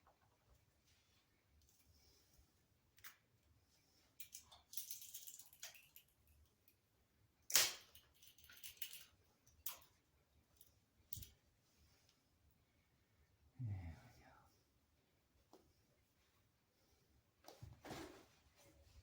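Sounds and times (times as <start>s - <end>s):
sharp plastic clicks and snaps: 7.5s - 9.8s.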